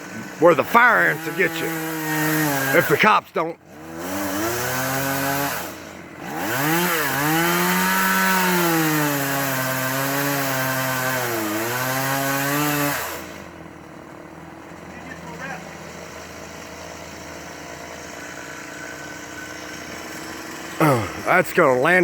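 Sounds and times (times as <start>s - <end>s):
chainsaw cutting wood: 0.0s - 22.0s.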